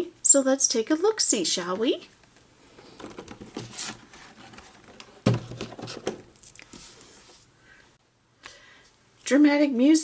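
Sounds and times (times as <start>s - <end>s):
rustling handling noise: 1.6s - 7.6s.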